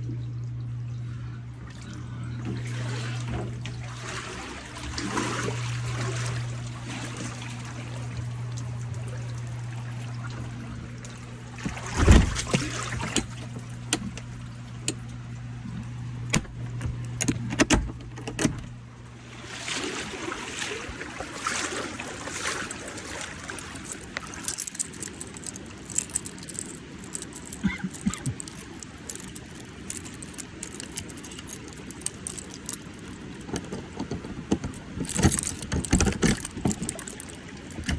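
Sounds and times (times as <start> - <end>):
low machine hum: 0.0 - 37.9
metallic jangling and clattering: 23.6 - 37.9.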